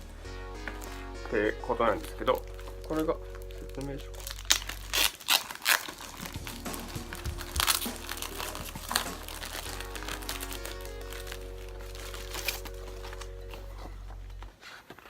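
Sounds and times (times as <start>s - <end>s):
background music: 0.0s - 14.6s
paper and packaging crinkling: 1.9s - 15.0s.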